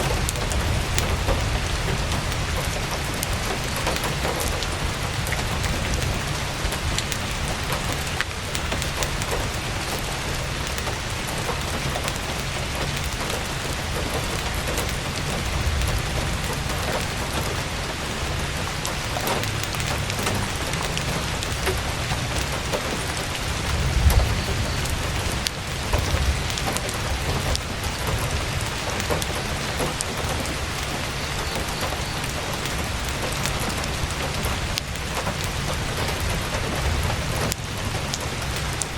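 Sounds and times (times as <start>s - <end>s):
campfire crackling: 0.0s - 38.9s
heavy rain on tent canvas: 0.0s - 38.9s.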